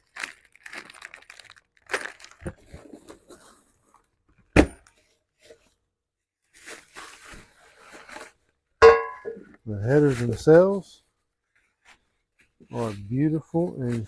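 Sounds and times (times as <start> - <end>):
packaging rustling: 0.0 - 3.9.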